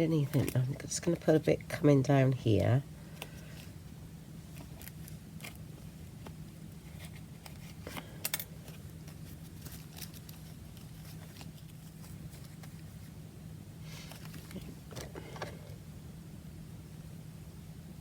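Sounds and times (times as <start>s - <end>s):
paper and craft materials handled: 0.0s - 1.8s, 4.5s - 13.2s, 13.9s - 15.7s
low steady hum: 0.0s - 18.0s.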